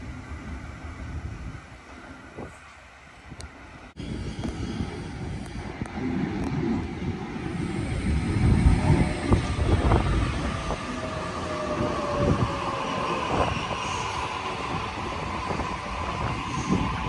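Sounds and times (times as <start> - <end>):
electric train rumble: 0.0 - 17.0
steady train whine: 0.0 - 17.0.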